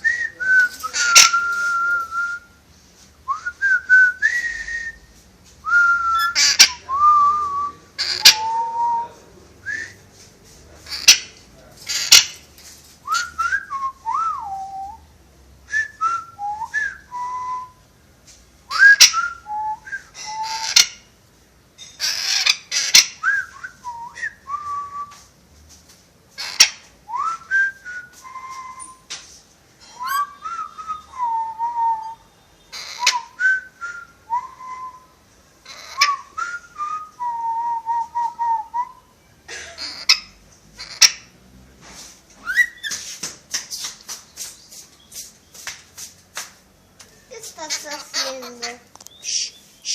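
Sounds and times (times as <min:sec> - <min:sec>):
parrot whistling: 0:00.9 - 0:01.7, 0:05.8 - 0:06.9, 0:08.0 - 0:08.8, 0:18.7 - 0:20.9, 0:29.9 - 0:35.1, 0:35.7 - 0:39.0, 0:42.4 - 0:43.0.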